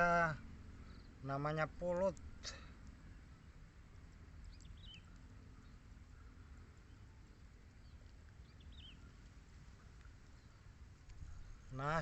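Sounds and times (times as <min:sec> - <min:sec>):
low steady rumble: 0:00.0 - 0:12.0
faint bird chirps: 0:00.3 - 0:01.4, 0:04.4 - 0:12.0.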